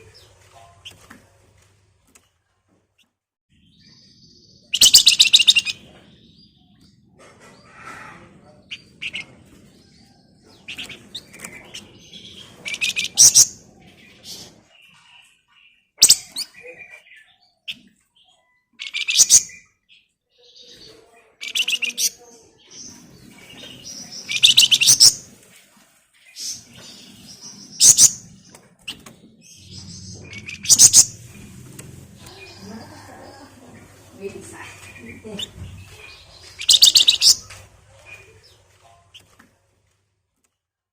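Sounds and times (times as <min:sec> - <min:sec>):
thin bird chirps: 0:03.0 - 0:06.9, 0:08.6 - 0:31.5, 0:34.3 - 0:39.4
songbird rattling trills: 0:36.6 - 0:37.5.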